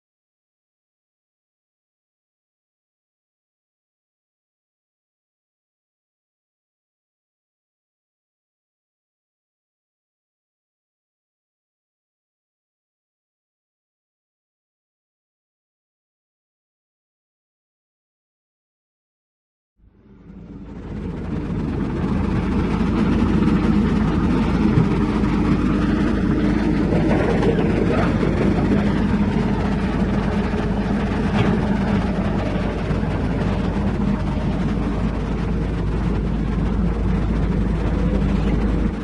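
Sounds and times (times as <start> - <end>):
diesel engine droning: 19.8 - 39.0.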